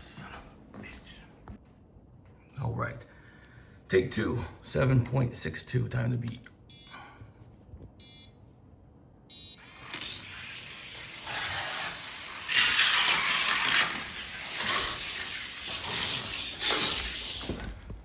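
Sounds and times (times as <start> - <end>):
toy car wheels rolling on track: 9.8 - 17.6.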